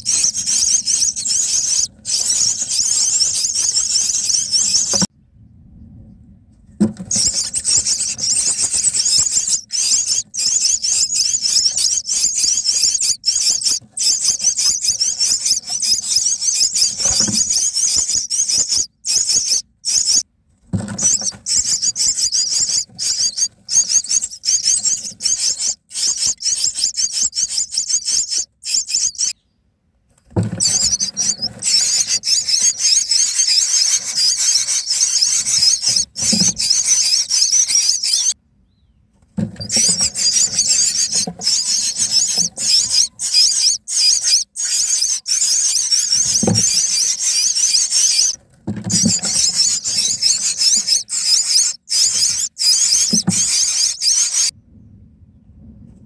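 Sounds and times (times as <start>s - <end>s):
nestlings squeaky begging calls: 0.0s - 5.1s, 7.0s - 20.2s, 20.9s - 29.4s, 30.5s - 38.4s, 39.6s - 54.5s
dull thumps: 30.3s - 38.1s, 48.0s - 51.1s, 53.0s - 54.4s.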